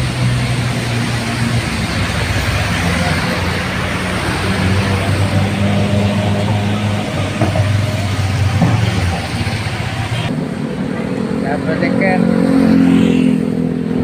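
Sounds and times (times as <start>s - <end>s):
bus diesel engine hum: 0.0s - 12.2s
road noise: 0.0s - 14.0s.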